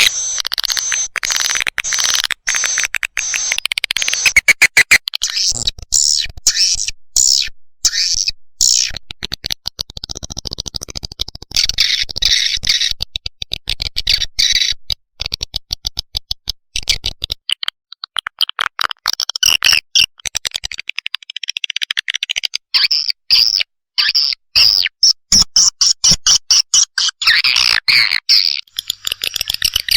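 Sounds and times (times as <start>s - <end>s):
swiftlet chicks calling: 0.0s - 8.9s, 28.3s - 29.9s
swiftlets twittering chirps and clicks: 0.0s - 9.0s, 26.6s - 29.9s.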